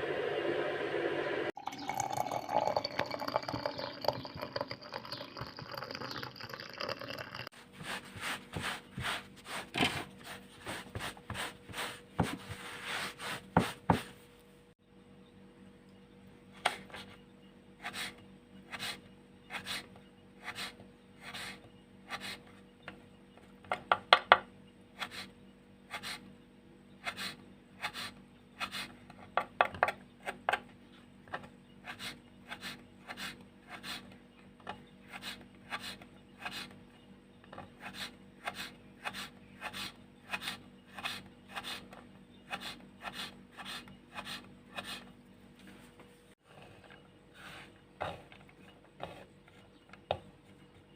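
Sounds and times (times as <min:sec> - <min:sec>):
faint steady hum: 0:00.0 - 0:50.9
rubbing rasping strokes: 0:07.6 - 0:14.2.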